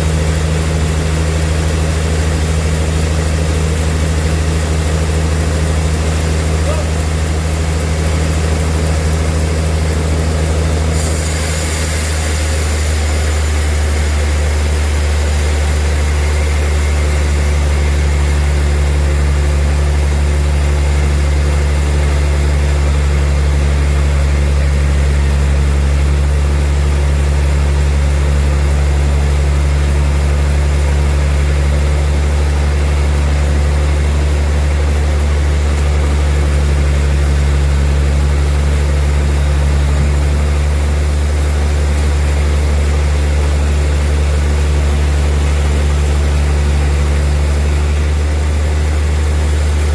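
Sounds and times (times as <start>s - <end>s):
sawmill machinery humming: 0.0s - 49.9s
machinery hiss: 10.9s - 17.0s.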